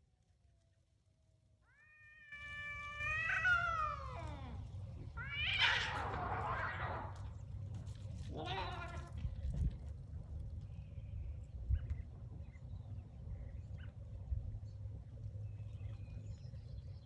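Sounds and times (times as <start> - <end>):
cat yowling: 1.7 - 7.2, 8.3 - 9.1
cat screeching and hissing: 2.2 - 4.6, 5.2 - 7.2.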